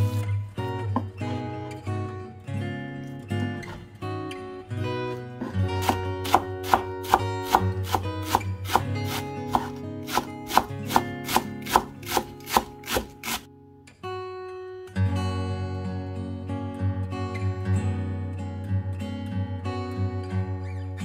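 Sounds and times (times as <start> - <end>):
acoustic guitar music: 0.0 - 21.0
knife chopping on cutting board: 5.4 - 13.4.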